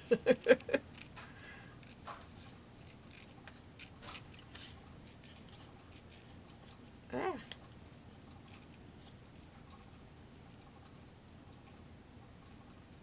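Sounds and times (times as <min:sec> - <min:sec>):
scissors cutting paper: 0:01.8 - 0:06.8.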